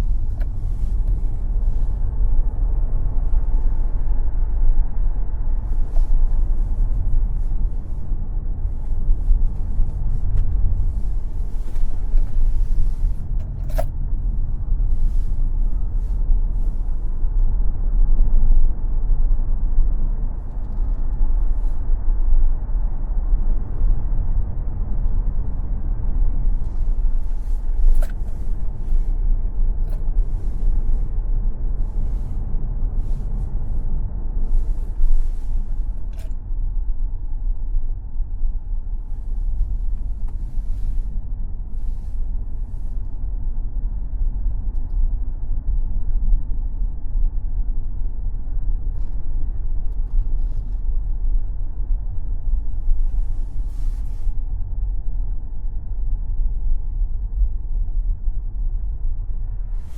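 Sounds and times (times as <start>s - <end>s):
tyre and road noise: 0.0s - 43.3s
wind noise: 0.0s - 59.9s.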